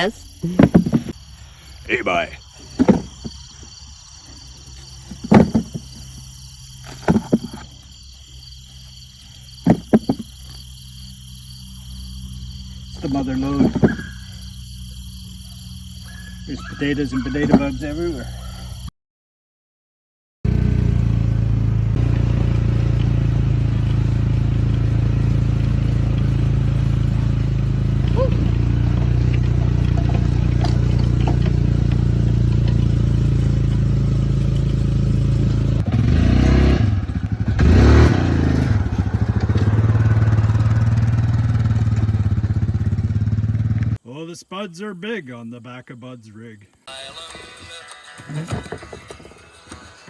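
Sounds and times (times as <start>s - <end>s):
insects chirping: 0.0s - 18.9s, 20.9s - 50.0s
low engine hum: 20.5s - 44.0s.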